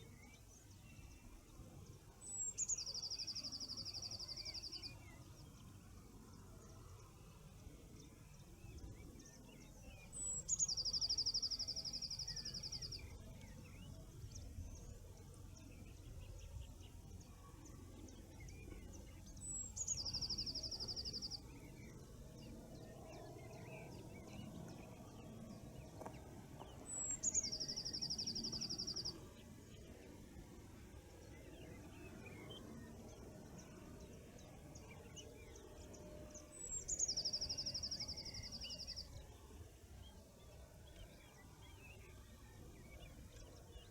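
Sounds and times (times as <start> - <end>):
songbird trill song: 0.0 - 43.9.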